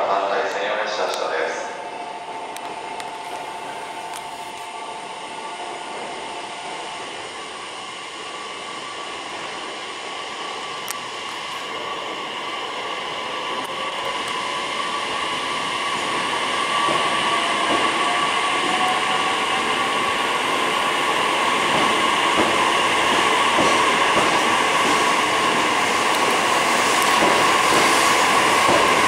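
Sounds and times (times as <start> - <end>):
electric train passing: 0.0 - 29.0.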